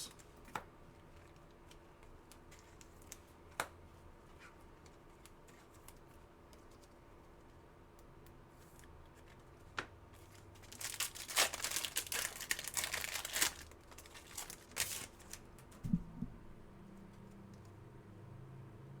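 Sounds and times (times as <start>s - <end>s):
foil wrapper crinkling: 10.2s - 15.8s
low thump: 15.8s - 16.6s.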